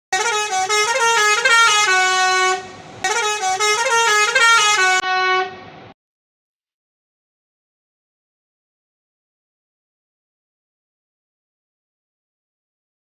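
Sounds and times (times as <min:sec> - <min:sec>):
musical bus horn tune: 0:00.1 - 0:05.8.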